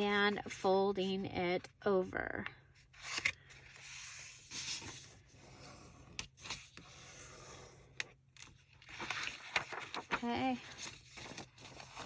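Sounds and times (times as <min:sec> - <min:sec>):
paper rustling and creasing: 0:02.8 - 0:12.0.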